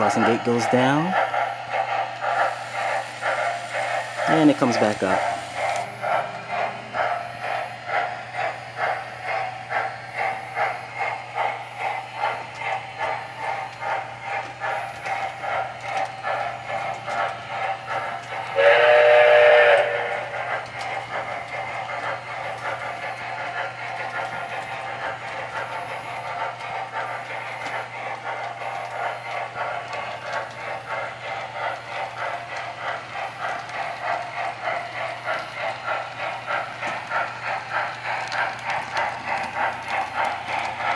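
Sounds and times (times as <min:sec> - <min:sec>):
steam locomotive chuffing: 0:00.0 - 0:40.9
locomotive whistle: 0:18.6 - 0:20.3.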